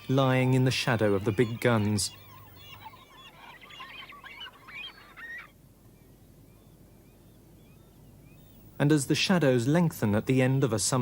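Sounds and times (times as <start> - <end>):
gulls calling: 0.0 - 5.6.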